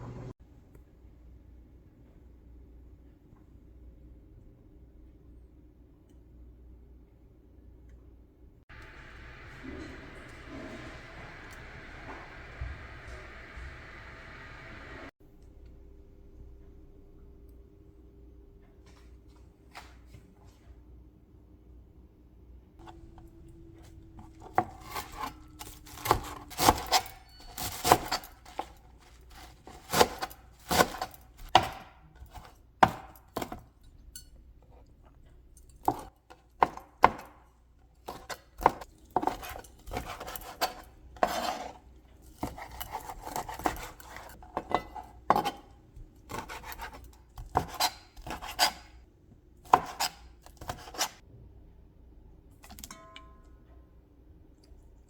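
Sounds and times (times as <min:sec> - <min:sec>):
knife scraping board: 0:39.3 - 0:41.8, 0:42.4 - 0:45.7, 0:46.3 - 0:49.0, 0:49.7 - 0:51.2
knife chopping on cutting board: 0:42.4 - 0:45.7, 0:46.3 - 0:48.9, 0:49.6 - 0:51.2.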